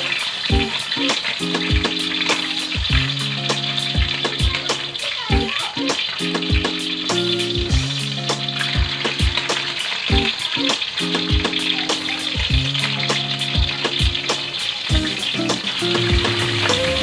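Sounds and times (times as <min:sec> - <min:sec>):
wings sizzling in a wok: 0:00.0 - 0:17.0
background music with low beat: 0:00.5 - 0:05.4, 0:06.2 - 0:10.4, 0:12.4 - 0:17.0.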